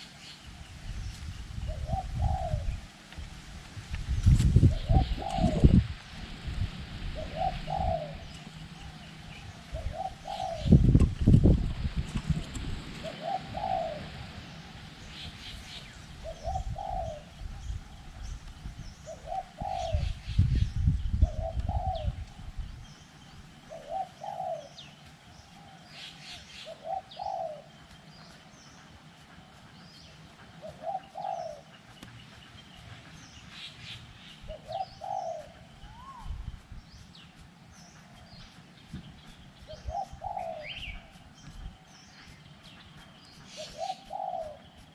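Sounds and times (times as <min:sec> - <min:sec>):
small birds chirping: 0:00.0 - 0:05.9, 0:07.1 - 0:44.9
wind buffeting microphone: 0:00.4 - 0:25.0, 0:32.2 - 0:44.9
dove cooing: 0:01.7 - 0:02.8, 0:04.6 - 0:05.8, 0:07.1 - 0:14.5, 0:16.1 - 0:17.4, 0:19.0 - 0:20.2, 0:21.2 - 0:22.2, 0:23.7 - 0:25.0, 0:26.6 - 0:27.7, 0:30.5 - 0:31.8, 0:34.5 - 0:36.4, 0:39.7 - 0:41.2, 0:43.4 - 0:44.9.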